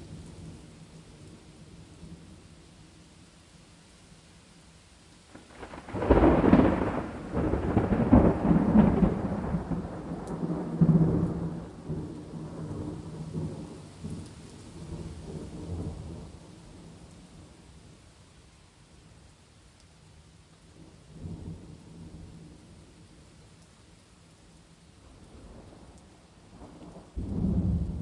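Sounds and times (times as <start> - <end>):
steady rain: 0.0 - 28.0
thunder rumbling: 5.3 - 17.5, 25.4 - 28.0.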